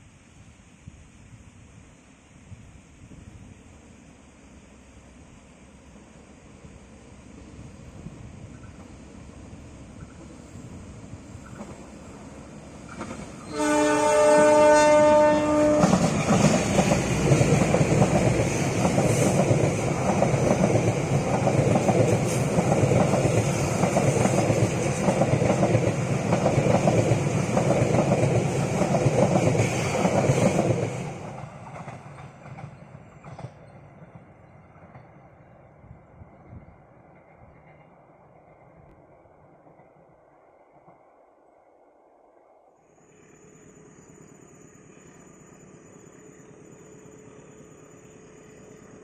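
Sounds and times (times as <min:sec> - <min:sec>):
train wheels clacking over rails: 0:11.1 - 0:35.5
locomotive horn blast: 0:13.4 - 0:16.1.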